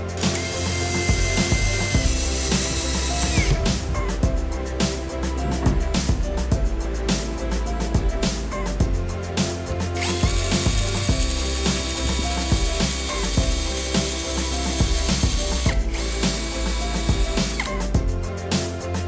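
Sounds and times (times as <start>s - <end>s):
power tool motor whining: 0.0s - 4.2s, 10.0s - 17.8s
background music: 0.0s - 19.0s.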